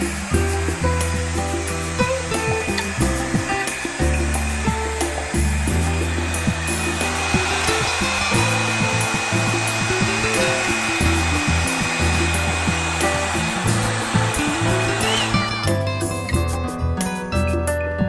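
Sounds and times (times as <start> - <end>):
hair dryer brush blowing: 0.0 - 15.7
background music with bass line: 0.0 - 18.0.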